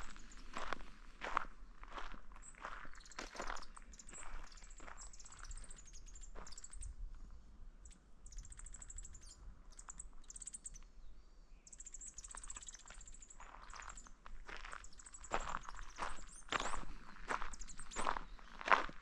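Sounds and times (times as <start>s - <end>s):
faint footsteps on path: 0.0s - 7.4s, 12.2s - 19.0s.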